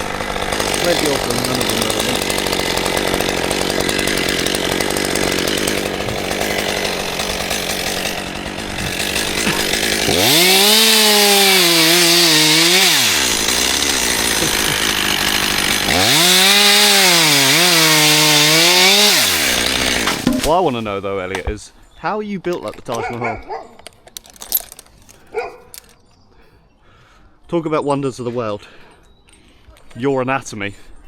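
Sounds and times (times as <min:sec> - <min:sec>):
chainsaw revving: 0:00.0 - 0:20.9, 0:24.3 - 0:25.9.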